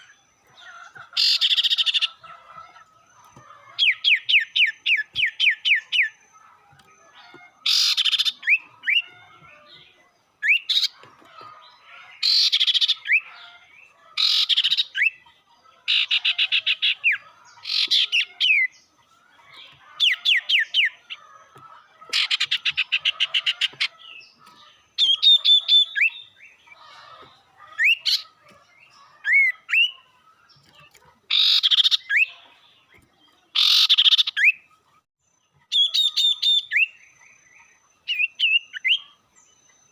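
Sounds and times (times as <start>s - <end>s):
bird calling: 0.0s - 39.3s.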